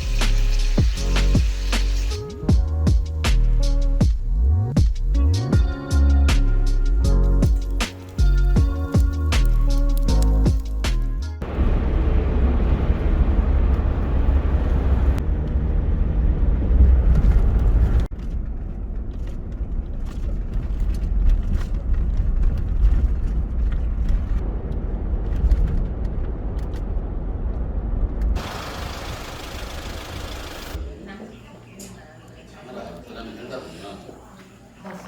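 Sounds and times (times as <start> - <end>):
vehicle engine and road rumble: 0.0 - 30.9.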